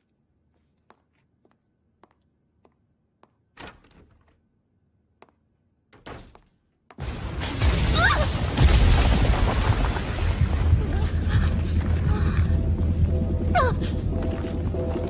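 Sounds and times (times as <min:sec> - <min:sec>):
loud rumbling crash: 0:07.0 - 0:14.8.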